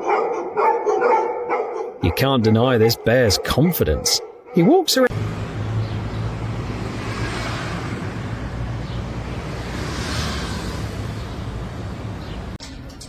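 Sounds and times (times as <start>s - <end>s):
low engine hum: 5.1s - 12.6s.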